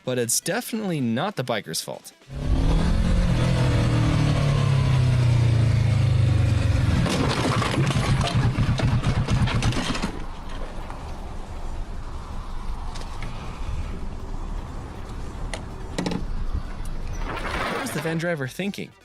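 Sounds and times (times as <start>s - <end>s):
motorcycle engine running: 2.3s - 10.2s
rough clattering with knocks: 7.0s - 11.0s.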